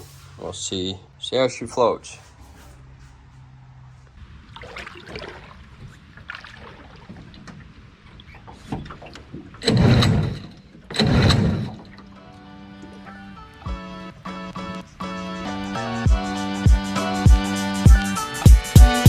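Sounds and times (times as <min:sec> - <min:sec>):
water sloshing against boat: 0:02.0 - 0:15.8.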